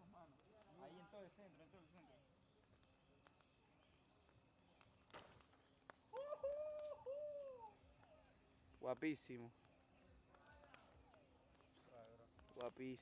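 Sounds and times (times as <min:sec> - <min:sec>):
night insects chirring: 0:00.0 - 0:13.0
crash into campfire: 0:05.1 - 0:05.5
people saying ooh in awe: 0:06.1 - 0:07.8.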